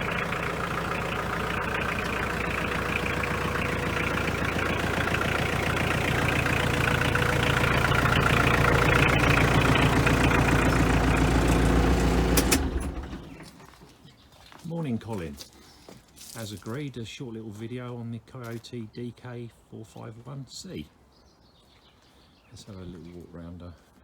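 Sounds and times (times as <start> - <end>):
tractor diesel engine idling: 0.0 - 13.9.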